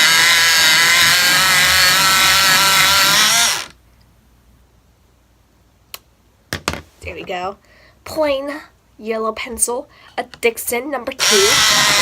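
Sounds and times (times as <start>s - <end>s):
electric pencil sharpener running: 0.0s - 3.7s, 11.2s - 12.0s.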